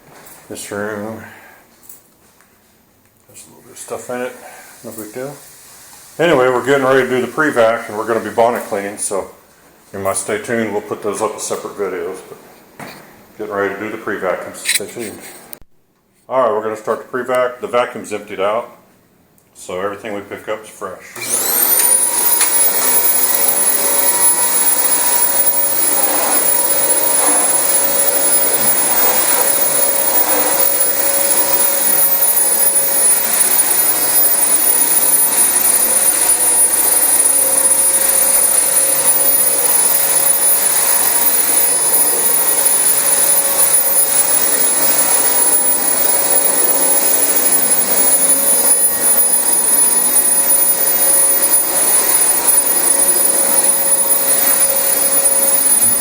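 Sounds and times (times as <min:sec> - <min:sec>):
vacuum cleaner running: 0:21.2 - 0:56.0.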